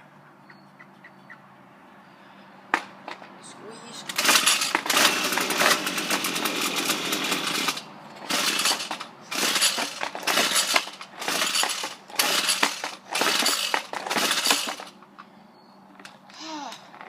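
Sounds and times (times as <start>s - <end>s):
string trimmer recoil starter cranking: 4.0s - 15.0s.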